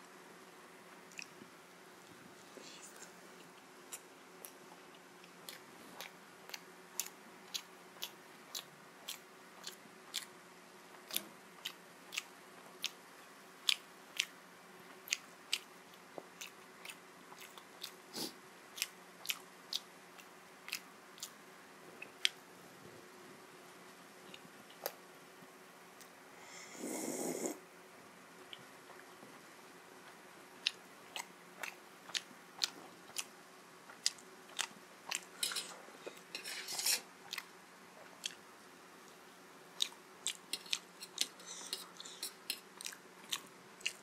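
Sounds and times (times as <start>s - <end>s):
chewing mouth smacks: 39.8s - 44.0s.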